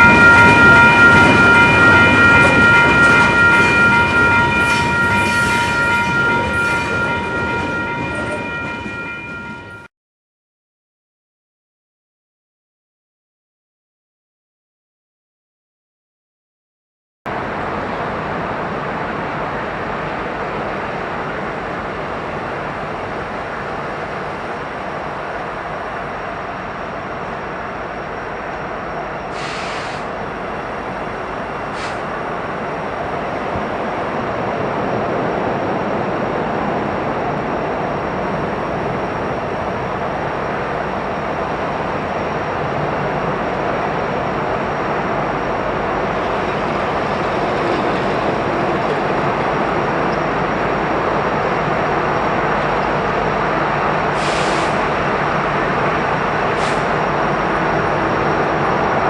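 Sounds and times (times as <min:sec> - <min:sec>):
freight train rumbling on rails: 0:00.0 - 0:09.9, 0:17.3 - 0:59.0
short hisses: 0:29.4 - 0:30.1, 0:31.8 - 0:32.1.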